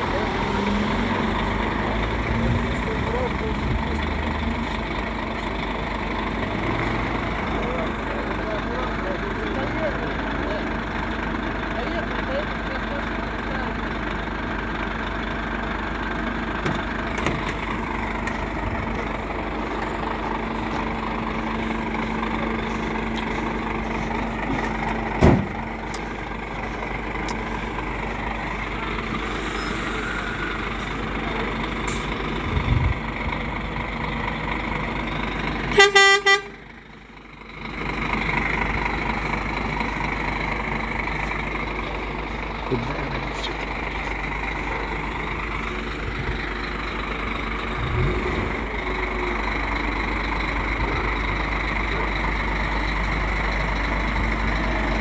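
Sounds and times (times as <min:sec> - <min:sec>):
truck engine running: 0:00.0 - 0:55.0
horn honk: 0:35.7 - 0:36.6.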